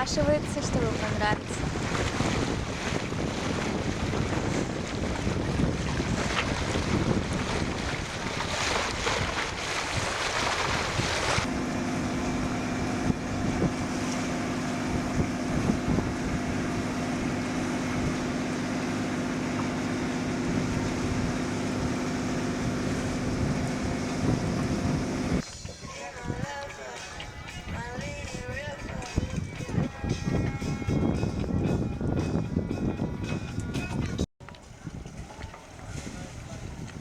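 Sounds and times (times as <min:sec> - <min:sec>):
rushing water: 0:00.0 - 0:11.5
wind buffeting microphone: 0:00.0 - 0:11.5, 0:12.4 - 0:18.4, 0:20.3 - 0:25.4, 0:27.6 - 0:37.0
steady low hum: 0:11.4 - 0:25.4.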